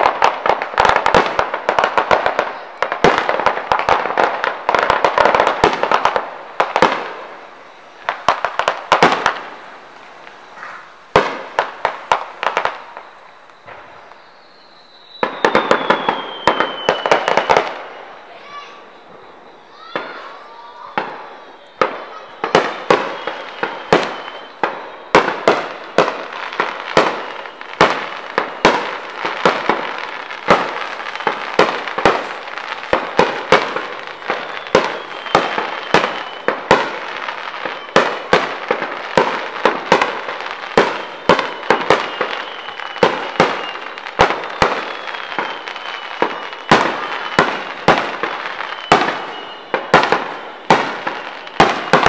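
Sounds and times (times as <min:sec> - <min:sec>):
firework shells booming: 0:00.0 - 0:07.3, 0:20.9 - 0:52.0
firework crackling: 0:00.0 - 0:52.0.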